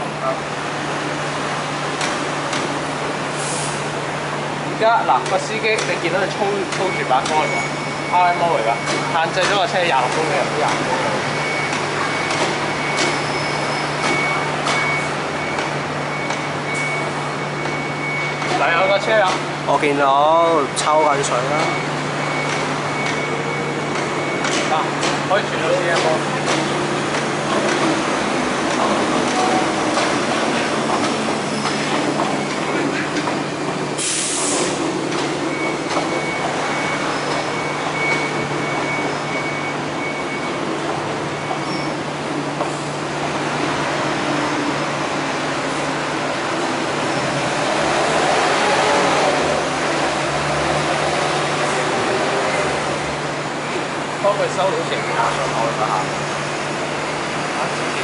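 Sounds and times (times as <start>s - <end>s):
train rumbling slowly: 0.0s - 39.2s
high beep: 6.7s - 19.2s, 20.3s - 25.9s, 35.4s - 40.7s.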